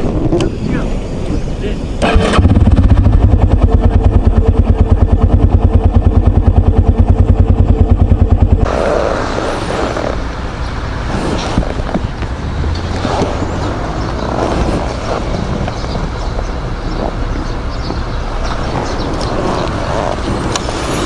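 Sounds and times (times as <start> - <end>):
steady rushing noise: 0.0 - 21.0
motorcycle engine idling: 2.0 - 8.8.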